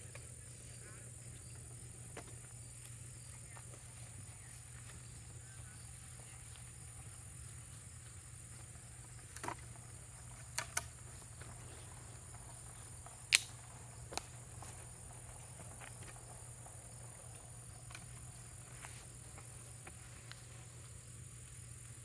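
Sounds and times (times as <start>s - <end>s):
crickets droning: 0.0s - 22.0s
sharp clicks: 13.3s - 14.3s.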